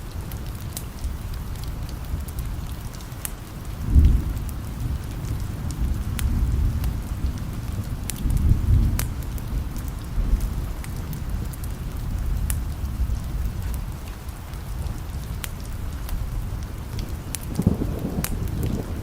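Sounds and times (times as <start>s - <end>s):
steady rain: 0.0s - 19.0s
sharp ticks and pops: 0.3s - 4.2s, 4.8s - 7.0s, 7.7s - 9.6s, 12.4s - 13.0s, 13.6s - 18.8s
rolling thunder: 3.6s - 14.0s, 14.7s - 19.0s.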